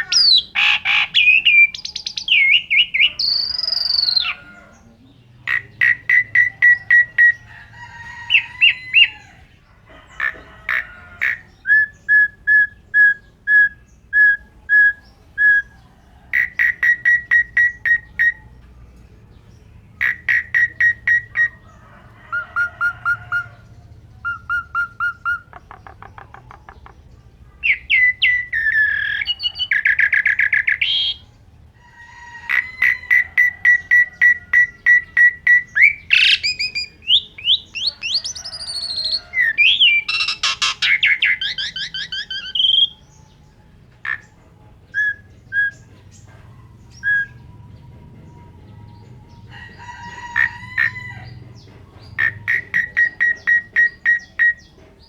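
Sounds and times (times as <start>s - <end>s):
starling singing varied song: 0.0s - 55.0s.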